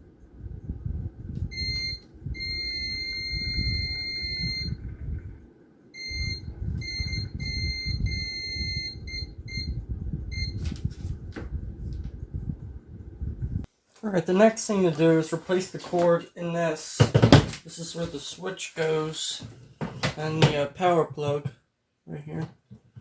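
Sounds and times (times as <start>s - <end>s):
low rumbling handling noise: 0.0s - 13.7s
multimeter continuity beeping: 1.4s - 5.0s, 6.0s - 10.7s.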